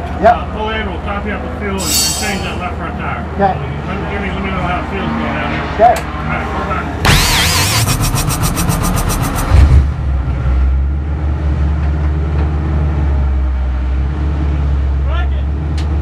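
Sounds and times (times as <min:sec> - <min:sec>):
engine starter cranking: 0:07.1 - 0:09.7
race car engine idling: 0:07.1 - 0:09.7.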